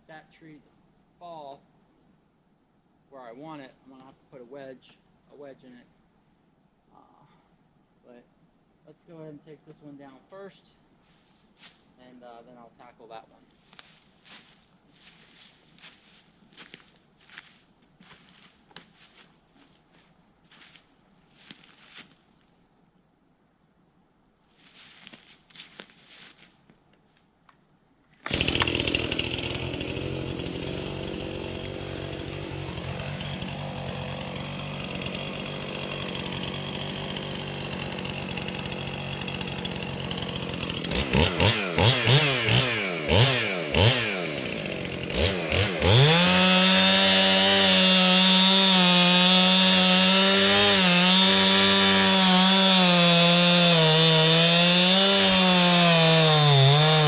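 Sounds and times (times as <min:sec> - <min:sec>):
chainsaw revving and cutting: 0:28.3 - 0:57.0.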